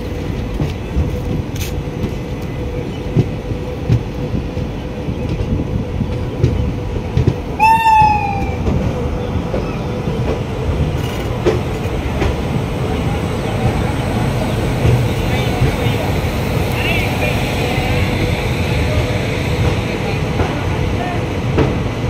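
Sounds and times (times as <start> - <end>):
train coaches rumbling: 0.0 - 22.0
high squeal: 7.6 - 8.7.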